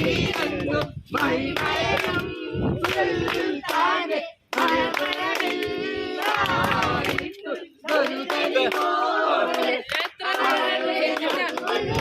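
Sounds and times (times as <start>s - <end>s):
group singing unaccompanied: 0.0s - 12.0s
hand clapping: 4.5s - 12.0s.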